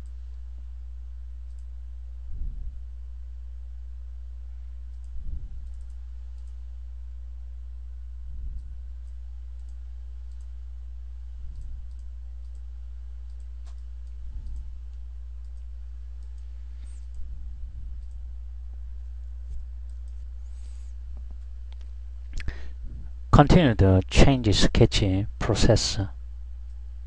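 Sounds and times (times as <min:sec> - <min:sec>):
low electrical hum: 0:00.0 - 0:27.0
computer mouse clicks: 0:01.4 - 0:01.7, 0:04.9 - 0:06.6, 0:08.5 - 0:10.5, 0:11.5 - 0:17.3, 0:17.9 - 0:18.2, 0:19.5 - 0:20.2.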